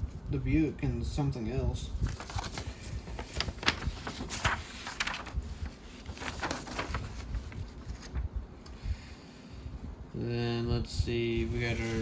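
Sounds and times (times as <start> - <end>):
paper rustling and crinkling: 1.7 - 8.7, 11.4 - 12.0.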